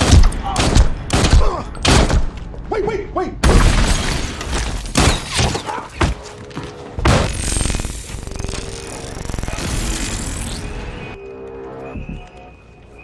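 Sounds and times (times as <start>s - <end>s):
gunfire: 0.0s - 2.4s
glass shattering: 3.4s - 6.2s.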